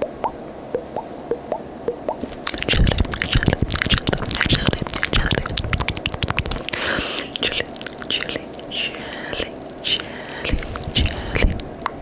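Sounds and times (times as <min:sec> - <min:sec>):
tongue clicks and wet smacks: 0:00.2 - 0:12.0
breathy hiss: 0:02.2 - 0:11.8.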